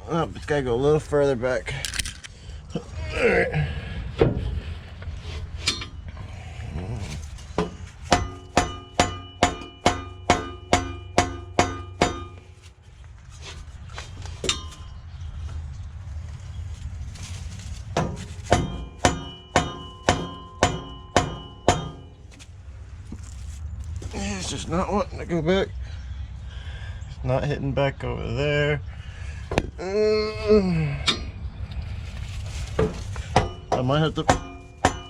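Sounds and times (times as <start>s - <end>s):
mallet striking ringing metal pipe: 8.1s - 12.5s, 18.5s - 22.2s, 33.4s - 35.0s.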